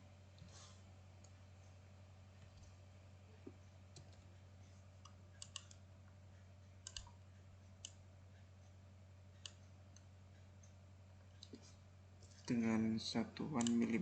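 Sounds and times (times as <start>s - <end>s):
low electrical hum: 0.0s - 14.0s
computer mouse clicks: 5.0s - 5.8s, 6.8s - 7.2s, 9.4s - 11.6s, 13.6s - 13.9s.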